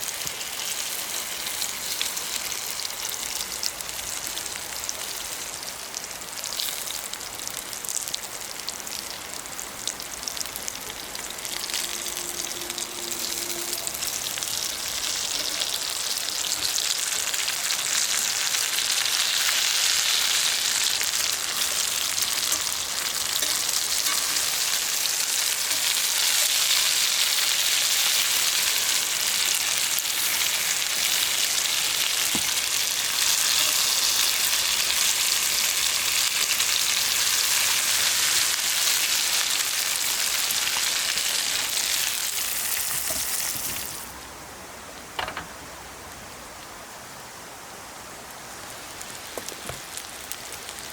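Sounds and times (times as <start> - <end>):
food sizzling in a pan: 0.0 - 44.2
oil popping and crackling: 15.1 - 44.1.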